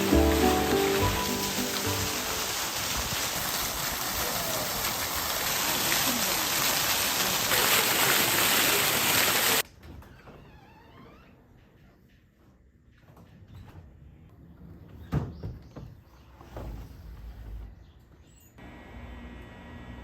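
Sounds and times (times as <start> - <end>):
falling water hissing: 0.0 - 9.6.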